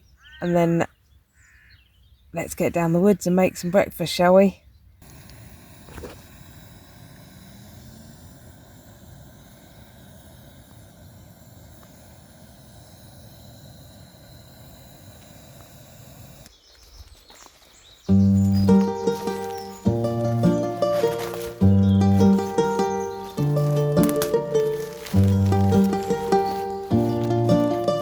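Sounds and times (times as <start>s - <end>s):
music: 18.1s - 28.0s.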